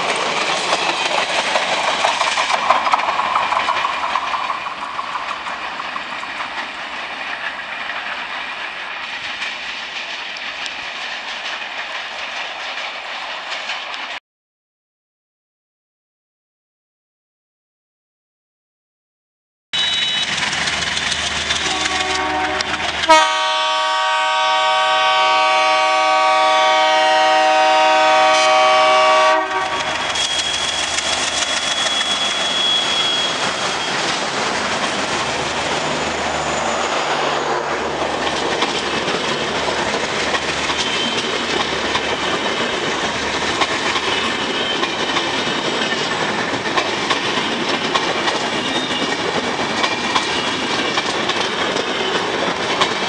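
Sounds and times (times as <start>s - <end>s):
wheels clattering over rail joints: 0.0s - 14.1s, 20.3s - 23.3s, 29.4s - 36.8s, 37.7s - 53.0s
train coaches rushing past: 0.0s - 14.2s, 19.8s - 53.0s
locomotive air horn blaring: 21.6s - 30.4s.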